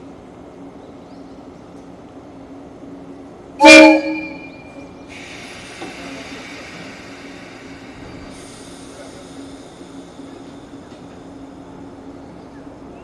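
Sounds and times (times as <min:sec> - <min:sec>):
train horn blast: 0:03.6 - 0:04.9
steady hiss: 0:05.0 - 0:12.0.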